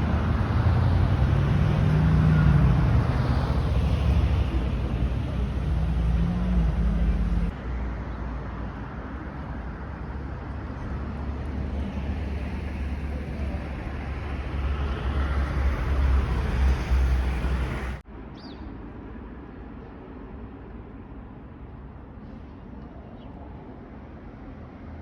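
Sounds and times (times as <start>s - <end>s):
train rumbling and rushing: 0.0s - 7.6s, 11.4s - 18.0s.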